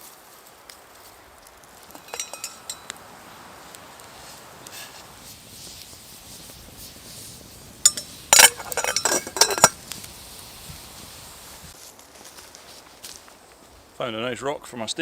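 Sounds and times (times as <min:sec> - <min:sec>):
metal cookware clinking: 0:01.9 - 0:03.0, 0:07.8 - 0:09.8.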